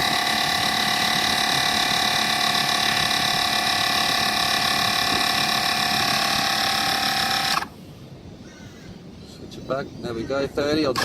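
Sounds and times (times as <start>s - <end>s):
air compressor whining: 0.0s - 7.8s.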